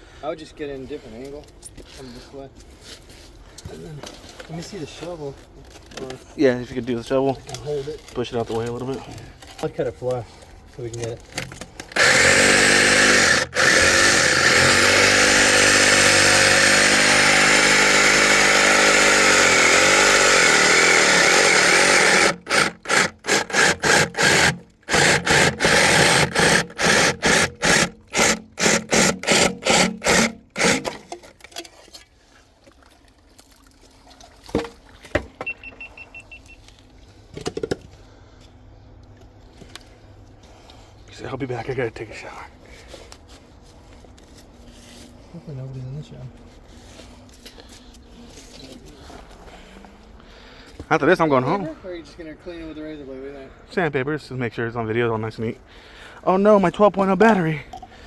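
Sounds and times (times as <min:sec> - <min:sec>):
power saw cutting pipe: 0:11.4 - 0:31.4.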